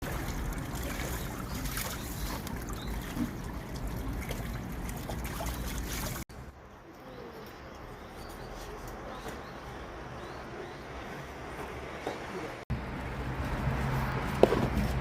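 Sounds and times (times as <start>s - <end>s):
water trickling and splashing: 0.0s - 6.3s.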